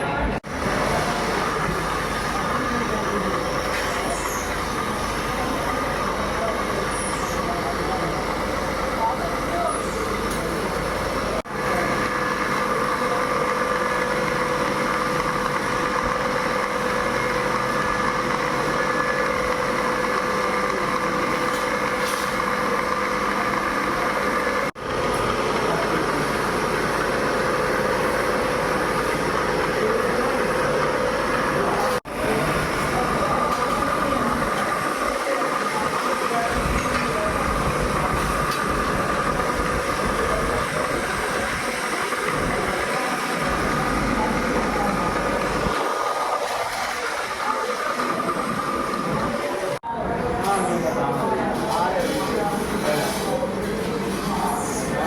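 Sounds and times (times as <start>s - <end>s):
factory machinery din: 0.0s - 55.0s.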